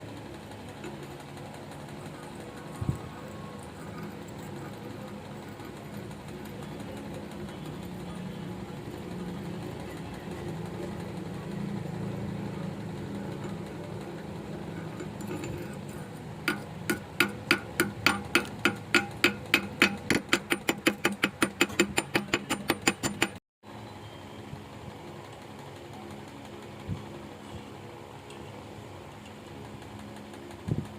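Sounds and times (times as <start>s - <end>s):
steady low hum: 0.0s - 23.3s.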